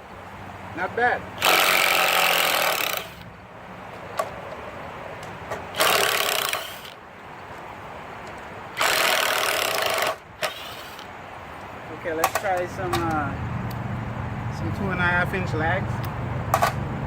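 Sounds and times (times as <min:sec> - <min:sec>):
impact driver driving screws: 0:01.4 - 0:03.3, 0:05.8 - 0:07.0, 0:08.8 - 0:11.1.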